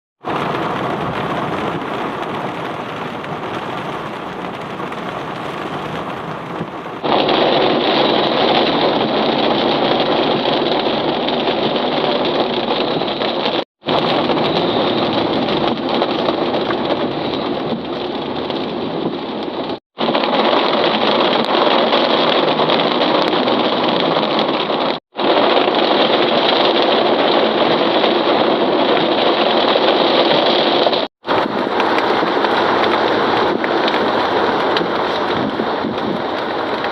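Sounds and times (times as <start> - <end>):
heavy rain falling: 0.2 - 36.9.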